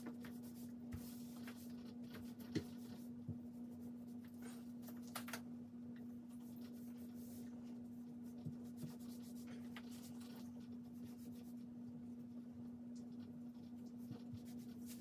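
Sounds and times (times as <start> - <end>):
paintbrush strokes on wall: 0.0 - 4.9, 6.3 - 15.0
steady low hum: 0.0 - 15.0.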